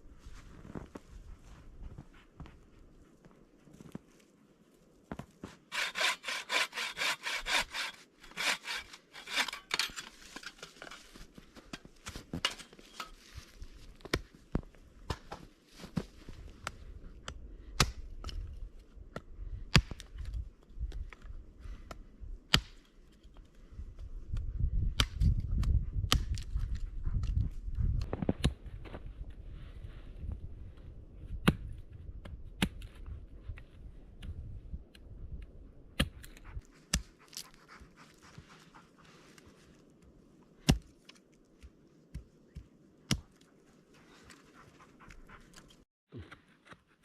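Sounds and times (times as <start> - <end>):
saw cutting wood: 5.7 - 10.1.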